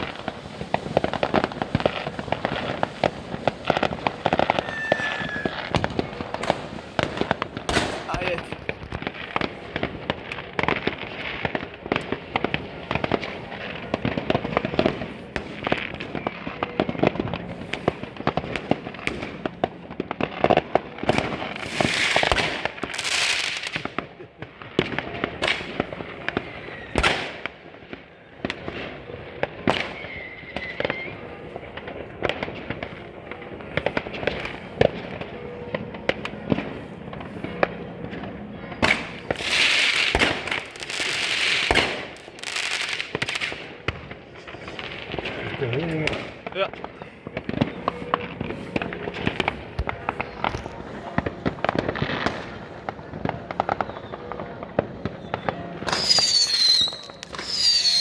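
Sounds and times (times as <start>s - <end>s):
hissing firework burst: 0.0s - 16.3s, 38.8s - 52.9s
fireworks bangs and crackles: 0.0s - 58.0s.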